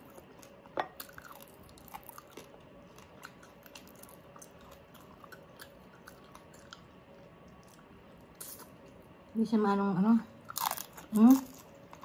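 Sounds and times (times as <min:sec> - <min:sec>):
faint chewing: 0:00.0 - 0:09.0.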